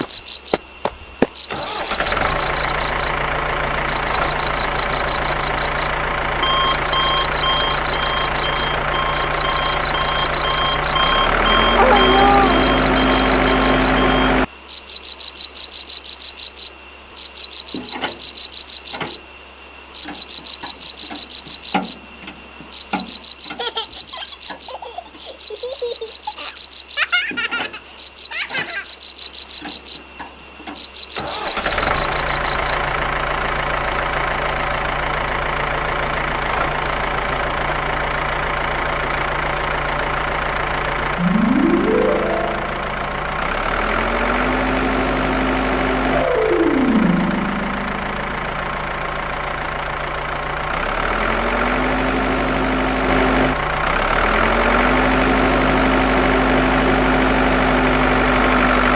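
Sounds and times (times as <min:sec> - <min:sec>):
cricket trilling: 0:00.0 - 0:03.2, 0:03.9 - 0:06.0, 0:06.6 - 0:14.0, 0:14.7 - 0:19.3, 0:19.9 - 0:22.1, 0:22.7 - 0:32.8
small engine humming: 0:00.9 - 0:14.5, 0:31.3 - 0:58.9.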